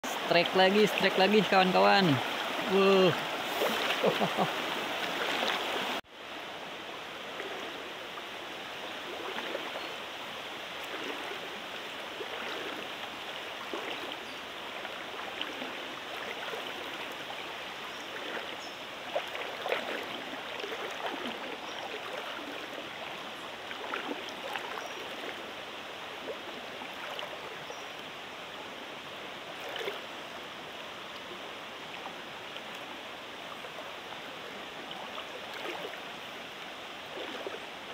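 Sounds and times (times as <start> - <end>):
stream water rushing: 0.0 - 37.9.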